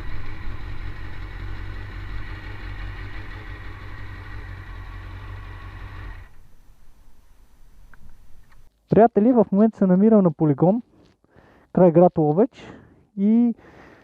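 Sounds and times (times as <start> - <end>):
motorcycle engine running: 0.0 - 6.6.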